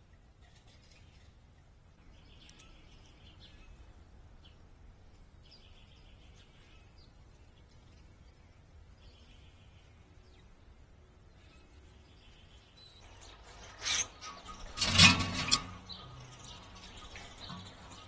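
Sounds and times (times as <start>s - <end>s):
short high bird chips: 13.0s - 16.8s.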